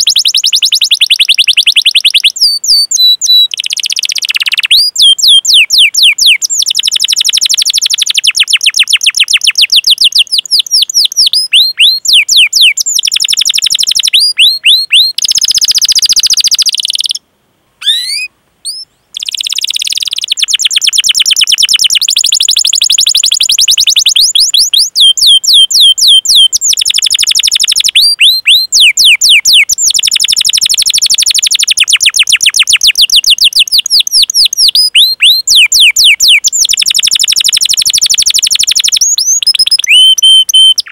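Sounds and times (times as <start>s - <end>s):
canary singing: 0.0s - 17.2s, 17.8s - 40.9s.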